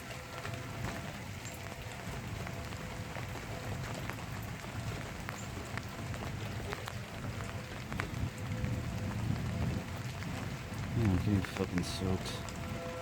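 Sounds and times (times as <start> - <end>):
faint warning siren tone: 0.0 - 4.0, 12.2 - 13.0
rain pattering: 0.0 - 13.0.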